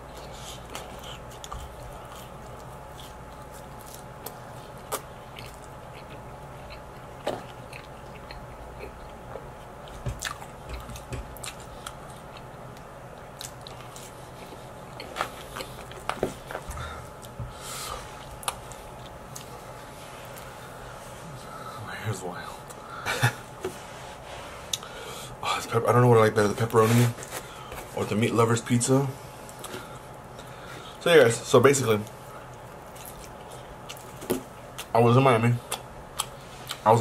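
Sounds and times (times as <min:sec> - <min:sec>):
person chewing pizza: 0:00.0 - 0:21.8, 0:29.3 - 0:31.0, 0:32.0 - 0:35.0, 0:35.6 - 0:37.0
faint steady hum: 0:00.0 - 0:37.0.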